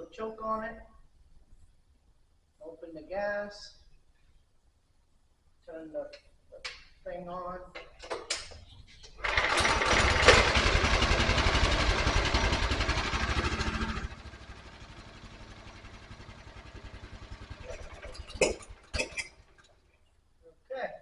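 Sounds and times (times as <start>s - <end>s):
small gas engine running: 9.2s - 19.8s.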